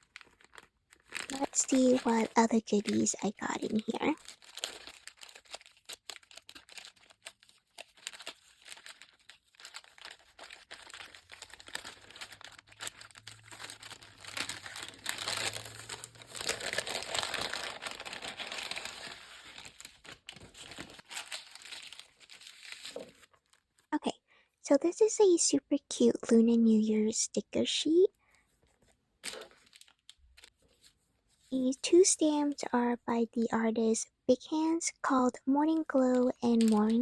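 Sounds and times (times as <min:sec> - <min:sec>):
packaging crinkling and rustling: 0:00.0 - 0:23.9, 0:28.6 - 0:32.5, 0:35.8 - 0:37.0.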